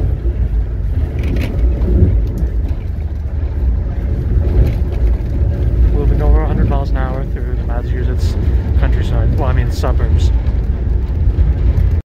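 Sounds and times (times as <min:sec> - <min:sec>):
train rumbling inside coach: 0:00.0 - 0:12.0.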